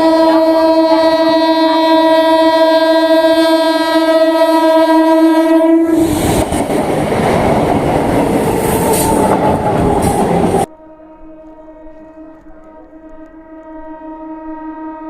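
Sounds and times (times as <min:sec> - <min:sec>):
train horn: 0:00.0 - 0:06.1, 0:08.7 - 0:15.0
wind noise: 0:05.8 - 0:10.7.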